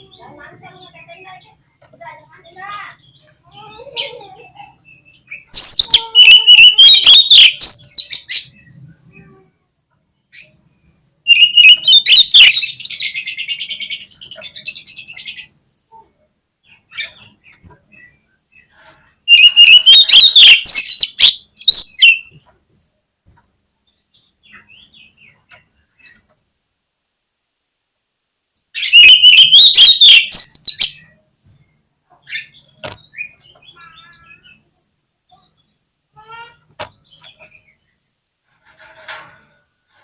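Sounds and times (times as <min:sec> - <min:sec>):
magpie-robin singing whistles: 0:05.2 - 0:08.2, 0:11.3 - 0:13.2, 0:19.3 - 0:22.3, 0:28.8 - 0:31.0.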